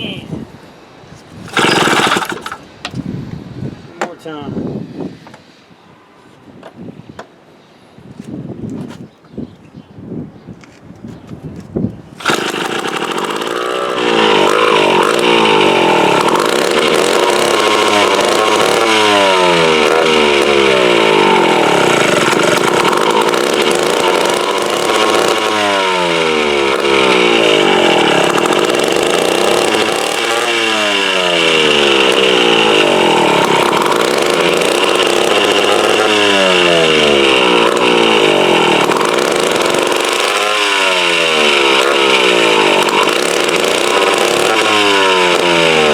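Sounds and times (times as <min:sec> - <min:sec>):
chainsaw engine revving: 0:01.4 - 0:02.7, 0:12.2 - 0:45.9.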